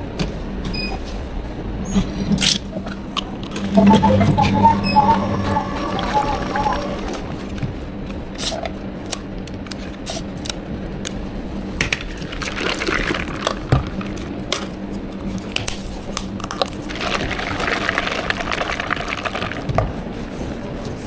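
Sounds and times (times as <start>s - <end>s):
equipment hum: 1.0s - 9.9s.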